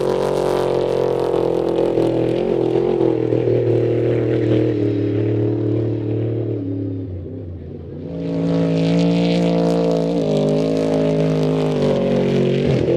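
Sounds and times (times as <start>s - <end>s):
truck engine at high revs: 0.0s - 12.9s.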